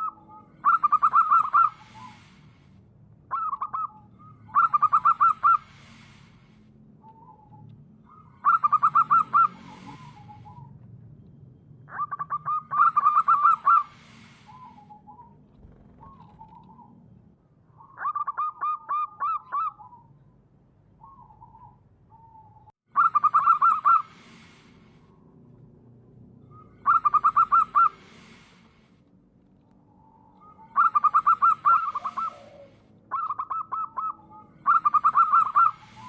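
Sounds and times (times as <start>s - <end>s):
dove cooing: 0.0s - 2.4s, 3.3s - 5.6s, 7.1s - 10.7s, 11.9s - 17.0s, 21.0s - 24.6s, 26.6s - 28.5s, 30.4s - 36.0s.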